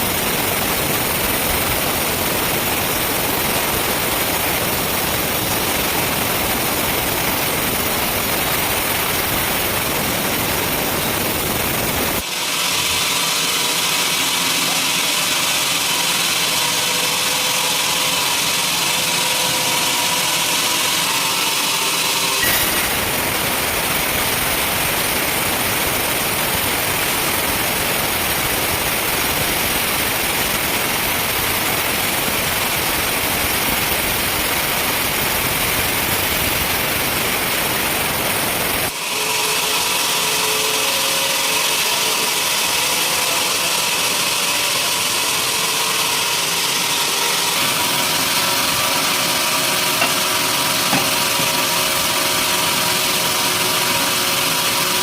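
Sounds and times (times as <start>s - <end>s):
machine hum with held tones: 0.0s - 42.5s
sawmill sawing noise: 0.0s - 55.0s.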